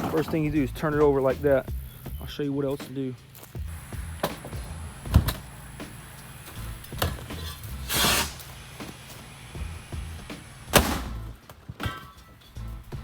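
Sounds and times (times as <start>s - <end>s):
background music with low beat: 0.0s - 13.0s
firework rocket hissing: 3.7s - 11.3s.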